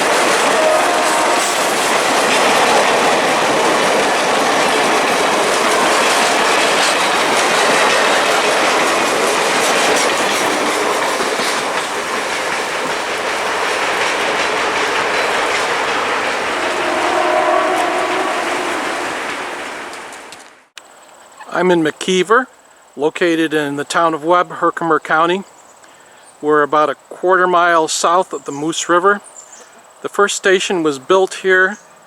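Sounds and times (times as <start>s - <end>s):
passenger train rolling past: 0.0s - 20.7s
wheels clacking over rail joints: 0.0s - 20.7s.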